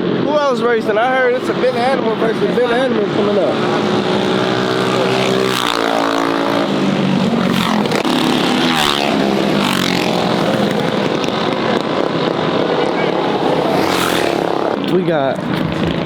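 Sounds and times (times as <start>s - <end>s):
mini bike engines revving: 0.0s - 16.0s.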